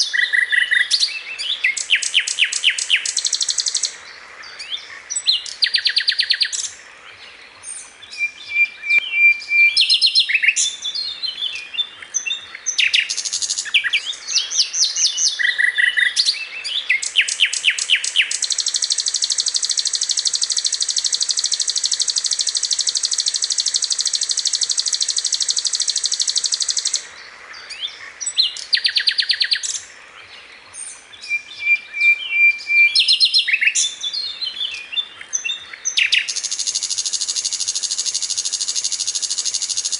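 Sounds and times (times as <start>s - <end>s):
long buzzing bird trill: 0.0s - 4.0s, 8.2s - 11.0s, 12.7s - 16.3s, 16.9s - 27.1s, 35.8s - 39.9s
bird singing chirps and trills: 0.0s - 39.9s.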